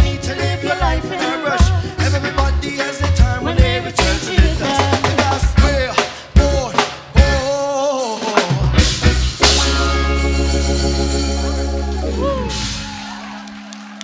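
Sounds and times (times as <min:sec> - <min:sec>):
live reggae band playing: 0:00.0 - 0:14.0
drum hits and fills: 0:03.1 - 0:13.7.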